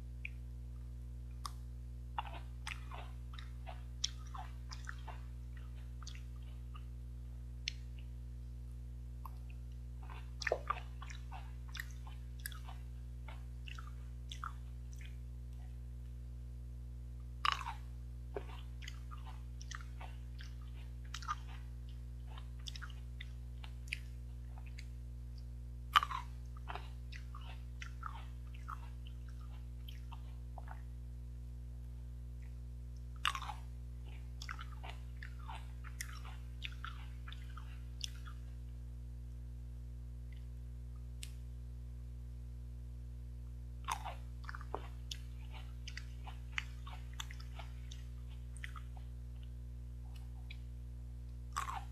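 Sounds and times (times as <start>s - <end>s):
steady low hum: 0.0s - 51.9s
crisp bites and wet chewing: 2.2s - 6.9s, 9.2s - 15.6s, 17.3s - 30.9s, 32.4s - 38.5s, 43.8s - 50.7s, 51.5s - 51.9s.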